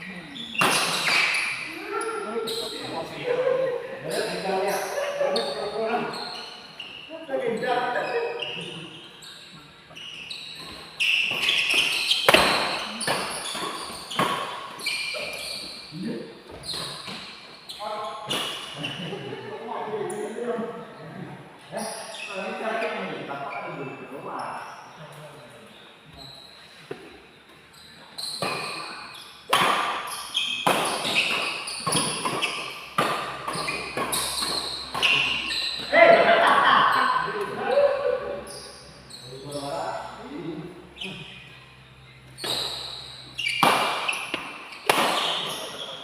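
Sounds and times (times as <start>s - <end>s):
shoes squeaking on court floor: 0.0s - 3.2s, 4.0s - 19.2s, 21.8s - 36.1s, 36.9s - 40.2s, 40.8s - 46.0s
rackets hitting shuttlecock: 0.6s - 1.5s, 10.6s - 14.8s, 29.5s - 35.9s, 43.4s - 45.6s.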